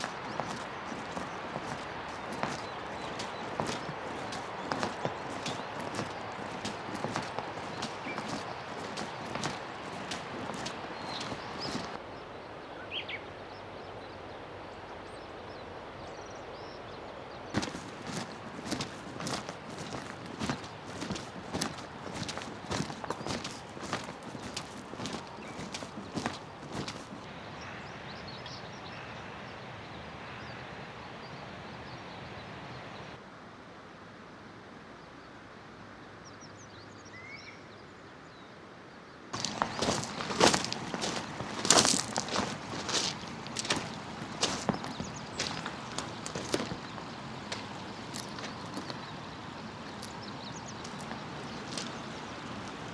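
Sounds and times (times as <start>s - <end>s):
footsteps: 0.0s - 12.0s, 17.6s - 27.3s, 39.4s - 52.9s
river water rushing: 0.0s - 12.0s, 17.6s - 27.3s, 39.4s - 52.9s
small birds chirping faintly: 0.0s - 27.4s, 39.4s - 52.9s
outdoor background noise: 0.0s - 33.8s, 39.3s - 52.9s.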